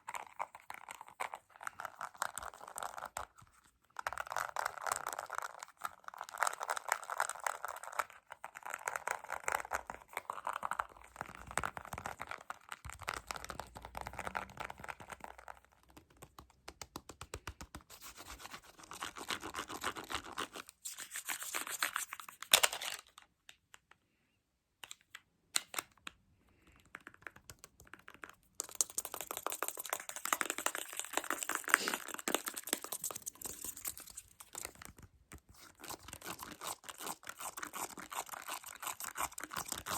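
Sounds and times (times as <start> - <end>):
fast tapping and scratching: 8.6 - 22.2, 27.3 - 39.9.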